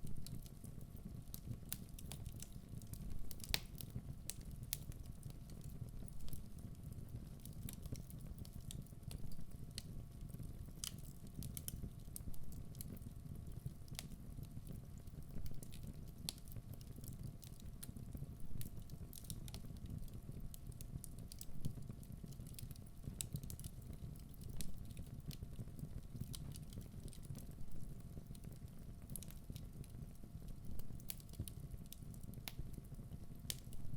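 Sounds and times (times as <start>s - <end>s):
wood fire crackling: 0.0s - 33.9s.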